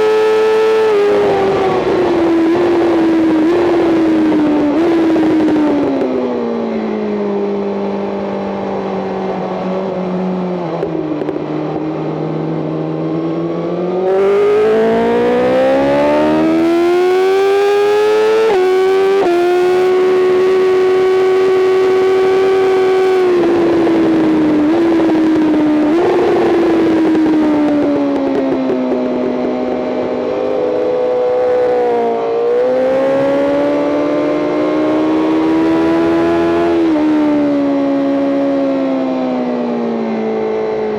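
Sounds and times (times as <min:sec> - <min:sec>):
throttle blips on downshifts: 0:00.0 - 0:07.0, 0:10.1 - 0:40.2
motorcycle engine revving: 0:00.0 - 0:40.9.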